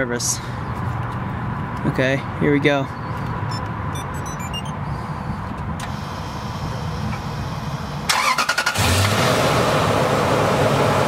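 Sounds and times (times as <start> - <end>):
short electronic beeps: 3.5 - 4.8.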